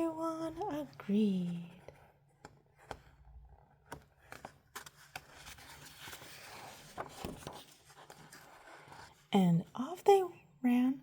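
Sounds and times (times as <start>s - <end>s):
paper rustling: 1.7s - 9.3s.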